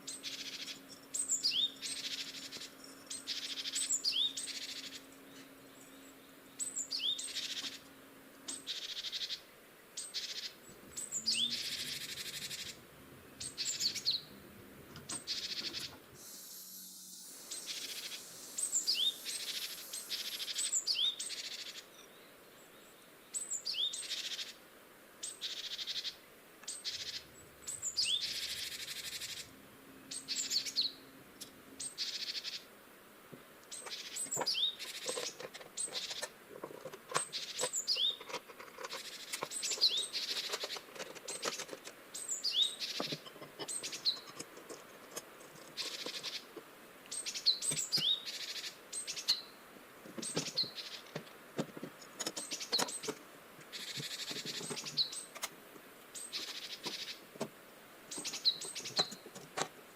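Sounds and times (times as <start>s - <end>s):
small birds chirping: 0.0s - 24.6s, 25.2s - 32.7s, 33.6s - 59.9s
bursts of hissing noise: 15.5s - 21.6s.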